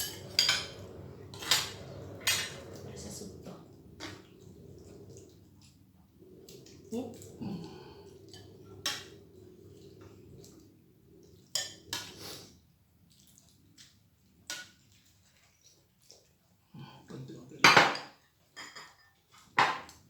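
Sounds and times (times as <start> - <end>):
cutlery clinking on plates: 0.0 - 2.8, 17.6 - 20.0
tableware clatter: 0.0 - 2.9, 17.6 - 20.0.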